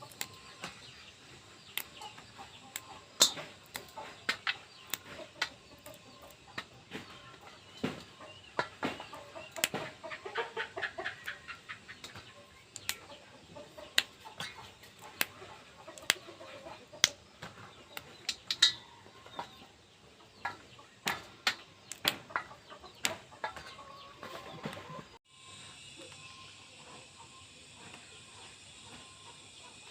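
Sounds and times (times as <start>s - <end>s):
sharp clicks and taps: 1.7s - 2.1s, 2.7s - 7.1s, 8.6s - 9.9s, 12.0s - 13.0s, 13.8s - 16.2s, 20.4s - 22.4s.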